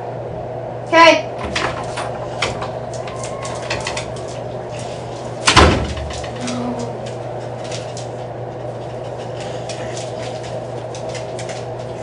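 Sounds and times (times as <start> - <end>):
steady low hum: 0.0 - 12.0
door slamming shut: 5.4 - 6.4.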